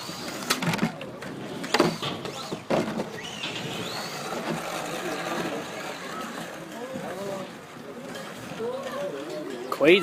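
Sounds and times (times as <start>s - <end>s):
rc truck motor whine: 0.0s - 0.8s, 1.5s - 7.3s.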